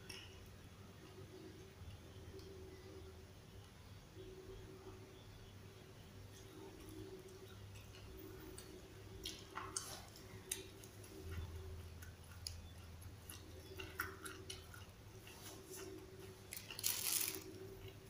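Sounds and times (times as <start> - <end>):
low steady hum: 0.0 - 18.0
chewing leaves: 6.4 - 18.0.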